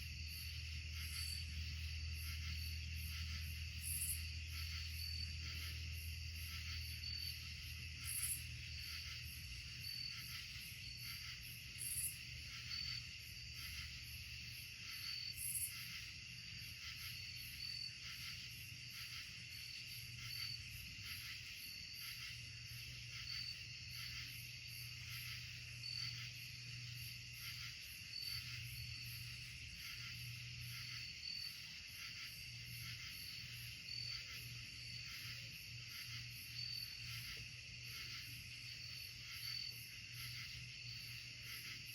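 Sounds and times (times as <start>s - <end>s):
continuous insect trill: 0.0s - 41.9s
insects chirping: 0.0s - 41.9s.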